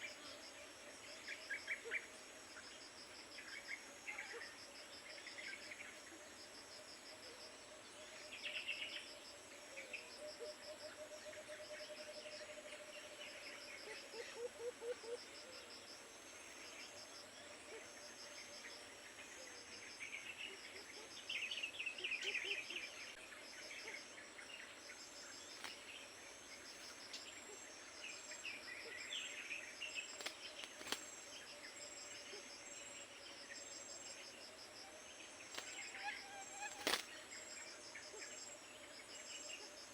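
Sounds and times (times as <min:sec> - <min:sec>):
insects trilling: 0:00.0 - 0:39.9
birds chirping: 0:35.2 - 0:37.4.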